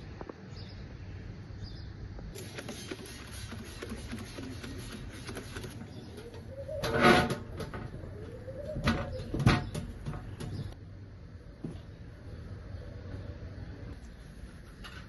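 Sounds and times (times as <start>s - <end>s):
pigeon cooing: 5.1s - 10.7s.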